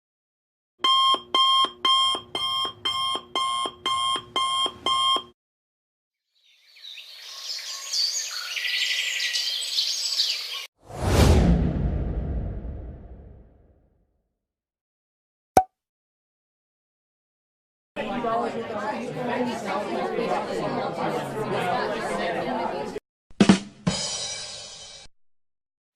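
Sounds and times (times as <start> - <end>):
alarm clock beeping: 0.8 - 5.3
loud whoosh with deep rumble: 10.9 - 13.6.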